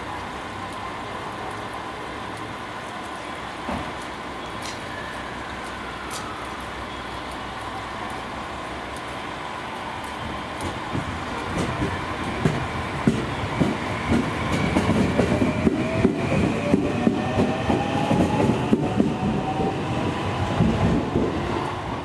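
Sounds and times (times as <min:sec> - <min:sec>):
train wheels clattering on rail joints: 0:10.1 - 0:19.7.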